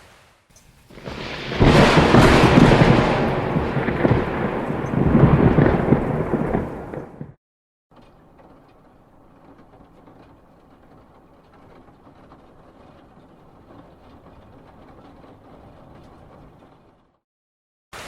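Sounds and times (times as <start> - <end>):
light rain: 0.0 - 7.4, 8.0 - 17.0
thunderclap: 0.1 - 7.4.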